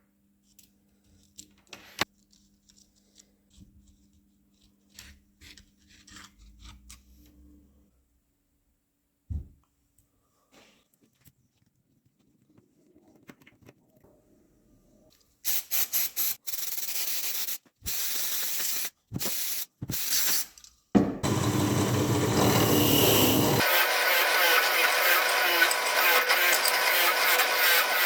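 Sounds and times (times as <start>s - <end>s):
power tool motor humming: 21.2s - 28.0s.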